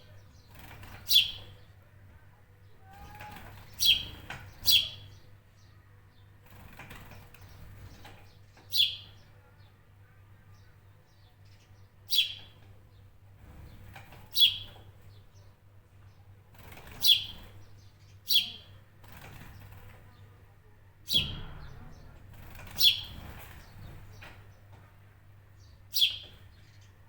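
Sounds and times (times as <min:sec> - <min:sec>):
bird chirping: 0:00.0 - 0:01.6, 0:02.9 - 0:05.8, 0:07.3 - 0:09.5, 0:10.5 - 0:15.5, 0:16.8 - 0:18.8, 0:21.1 - 0:24.8, 0:25.5 - 0:27.0.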